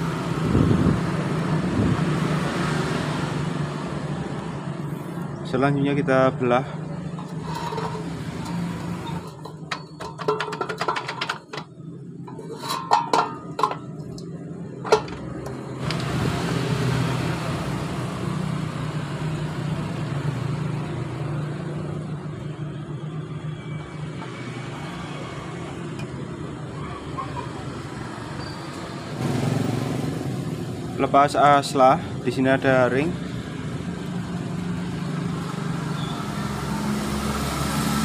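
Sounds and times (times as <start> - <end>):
steady vehicle rumble: 0.0 - 38.0
sharp metallic knocks and clinks: 7.1 - 11.7, 12.3 - 15.3.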